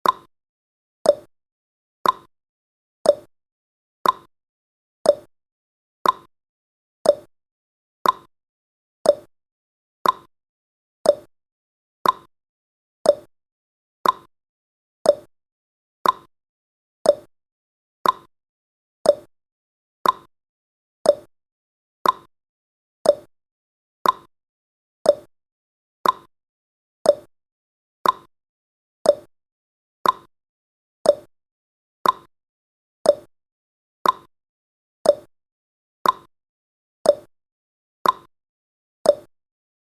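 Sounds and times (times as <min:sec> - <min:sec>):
timer ticking: 0:00.0 - 0:00.3, 0:01.0 - 0:01.3, 0:02.0 - 0:02.3, 0:03.0 - 0:03.3, 0:04.0 - 0:04.3, 0:05.1 - 0:05.3, 0:06.0 - 0:06.3, 0:07.0 - 0:07.3, 0:08.0 - 0:08.3, 0:09.0 - 0:09.3, 0:10.0 - 0:10.3, 0:11.0 - 0:11.3, 0:12.0 - 0:12.3, 0:13.0 - 0:13.3, 0:14.0 - 0:14.3, 0:15.0 - 0:15.3, 0:16.0 - 0:16.3, 0:17.0 - 0:17.3, 0:18.0 - 0:18.3, 0:19.0 - 0:19.3, 0:20.0 - 0:20.3, 0:21.0 - 0:21.3, 0:22.0 - 0:22.3, 0:23.0 - 0:23.3, 0:24.0 - 0:24.3, 0:25.0 - 0:25.3, 0:26.0 - 0:26.3, 0:27.0 - 0:27.3, 0:28.0 - 0:28.3, 0:29.0 - 0:29.3, 0:30.0 - 0:30.3, 0:31.0 - 0:31.3, 0:32.0 - 0:32.3, 0:33.0 - 0:33.3, 0:34.0 - 0:34.3, 0:35.0 - 0:35.3, 0:36.0 - 0:36.3, 0:37.1 - 0:37.3, 0:38.0 - 0:38.3, 0:39.1 - 0:39.3.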